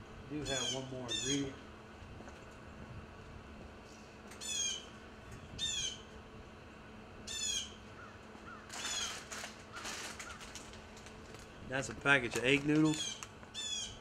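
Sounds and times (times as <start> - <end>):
bird calling: 0.4 - 1.6, 4.4 - 6.1, 7.2 - 10.7, 12.9 - 14.0.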